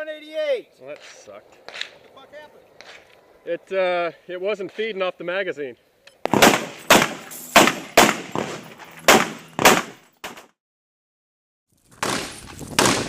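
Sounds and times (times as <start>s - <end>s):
rifle shots echoing: 6.2s - 10.4s, 12.0s - 13.0s.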